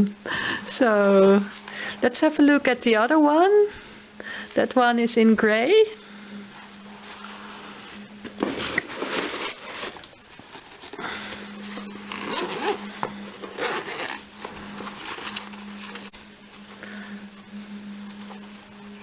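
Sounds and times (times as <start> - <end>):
steady low hum: 0.0 - 19.0
packaging rustling and crinkling: 7.0 - 16.2.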